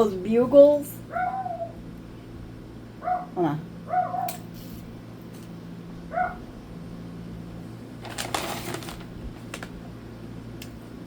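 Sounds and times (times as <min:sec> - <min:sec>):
steady low hum: 0:00.0 - 0:11.0
crinkly rustling: 0:08.0 - 0:09.9.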